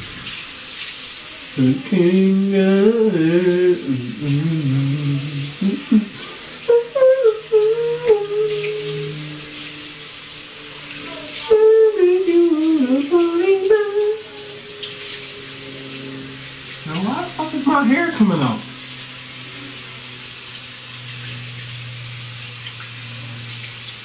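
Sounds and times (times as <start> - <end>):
water running from tap: 0.0 - 24.0
person singing: 1.5 - 9.5, 11.0 - 14.9.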